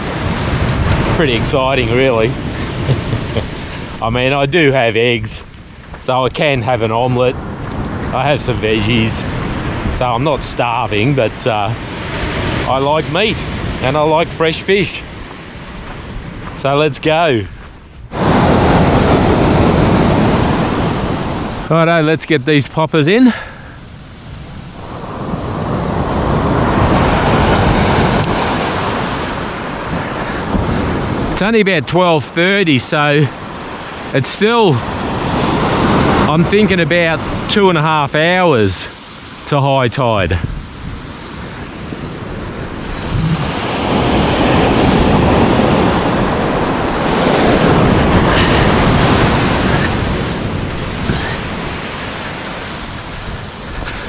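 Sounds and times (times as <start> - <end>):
wind on microphone: 0.0 - 16.6, 17.4 - 21.7, 23.6 - 31.4, 40.2 - 54.0
surf washing onto shore: 0.0 - 54.0.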